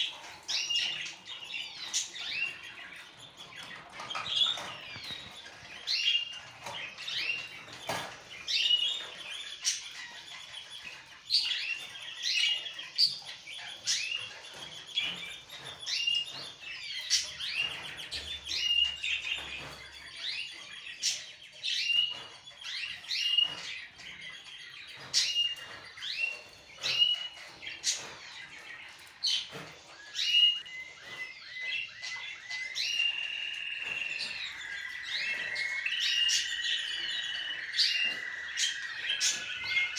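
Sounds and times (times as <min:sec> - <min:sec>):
pet birds chirping: 0:00.0 - 0:39.9.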